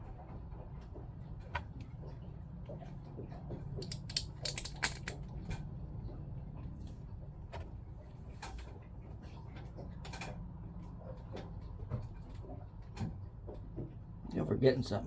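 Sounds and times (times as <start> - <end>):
pump parts clicking and knocking: 3.8 - 5.3.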